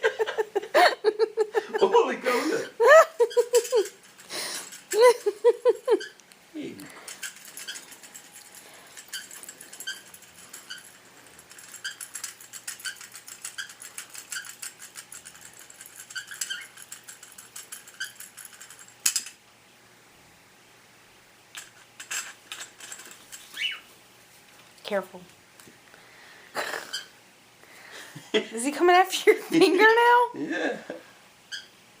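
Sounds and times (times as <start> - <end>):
light rattling: 6.7 - 19.3.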